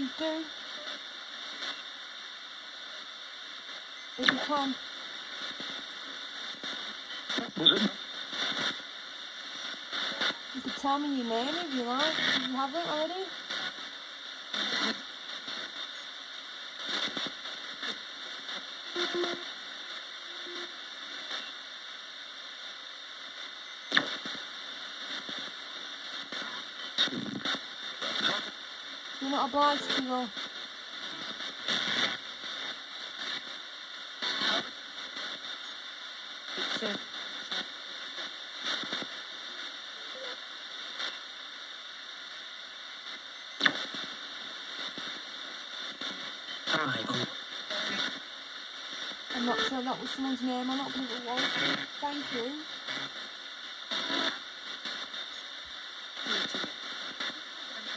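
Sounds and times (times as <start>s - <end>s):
crackling bursts: 0.0s - 57.9s
radio static hiss: 0.0s - 57.9s.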